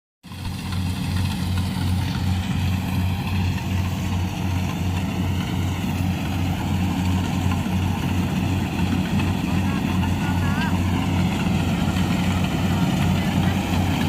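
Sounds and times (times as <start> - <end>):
diesel engine running: 0.2 - 14.0.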